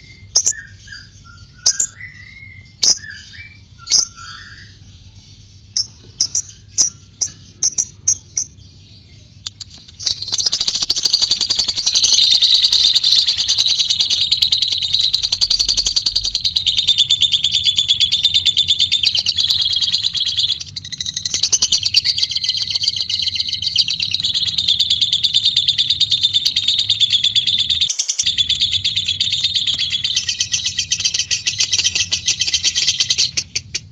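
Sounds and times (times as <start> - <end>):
lovebird chirping and chattering: 0.0 - 33.9.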